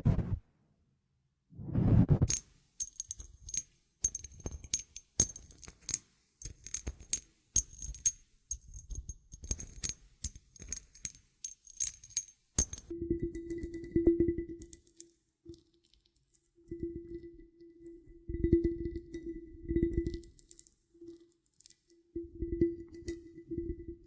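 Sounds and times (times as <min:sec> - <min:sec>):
small metal pieces jingling: 0:02.3 - 0:12.9.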